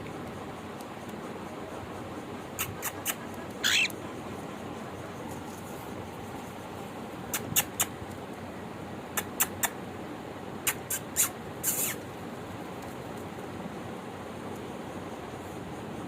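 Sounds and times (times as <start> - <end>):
small birds chirping: 2.4 - 5.3, 10.6 - 12.0.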